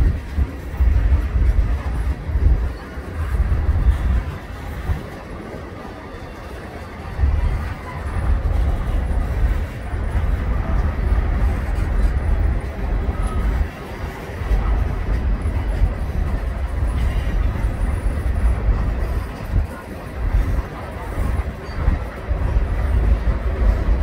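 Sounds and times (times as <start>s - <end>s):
freight train wheels rumbling: 0.0s - 24.0s.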